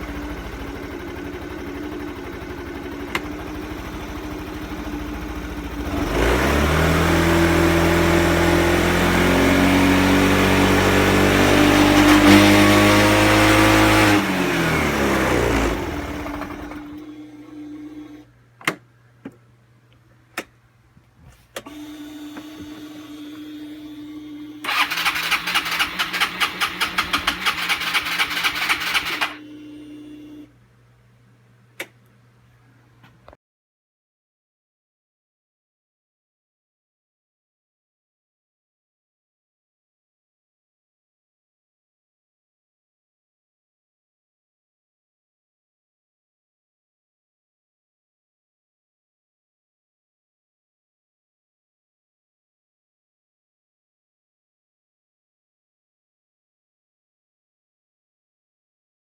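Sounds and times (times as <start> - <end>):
starter motor cranking: 0.0 - 8.4, 11.2 - 18.2, 24.6 - 29.5
scooter engine running: 0.0 - 18.2, 22.5 - 30.4.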